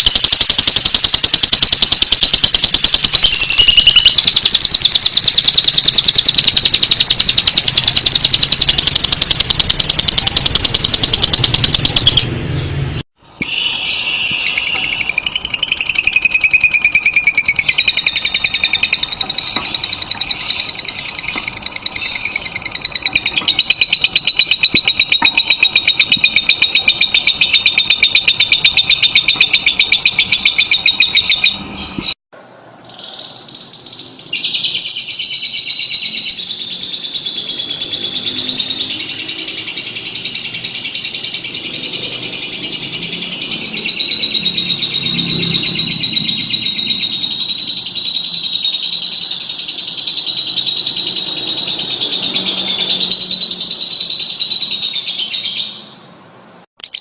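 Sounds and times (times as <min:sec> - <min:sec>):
lovebird chattering twitter: 0:00.0 - 0:12.3, 0:13.4 - 0:32.2, 0:32.8 - 0:55.9, 0:56.8 - 0:57.0.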